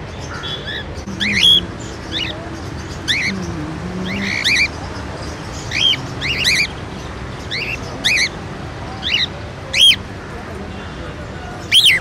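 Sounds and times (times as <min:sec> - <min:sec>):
birds with sharp rising calls: 0:00.0 - 0:08.4, 0:09.0 - 0:10.1
steady background noise: 0:00.0 - 0:12.0.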